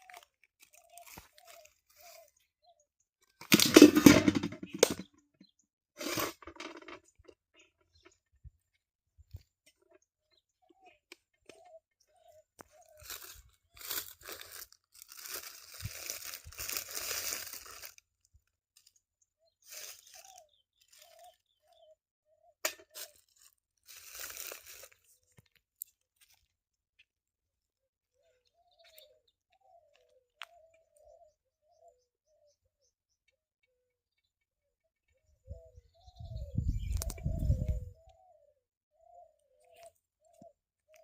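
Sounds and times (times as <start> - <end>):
rustling crunching noise: 0.0 - 2.3, 12.6 - 18.9, 19.6 - 21.4, 22.8 - 26.4.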